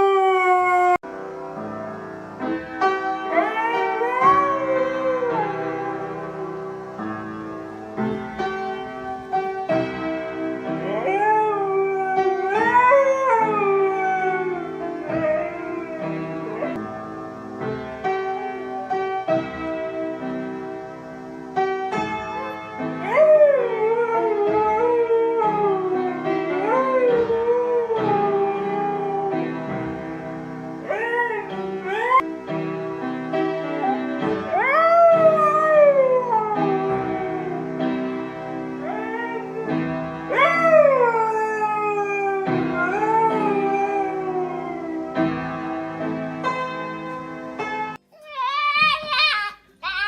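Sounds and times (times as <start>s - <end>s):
dog howling: 0.0s - 1.0s, 3.3s - 6.8s, 10.8s - 16.8s, 30.8s - 32.2s, 33.8s - 37.9s, 38.8s - 45.2s.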